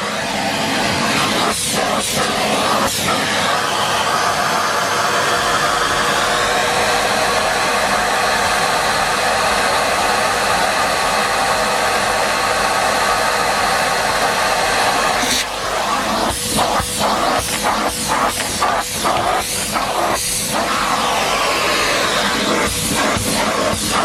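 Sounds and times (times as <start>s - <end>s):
vacuum cleaner running: 0.0s - 24.0s.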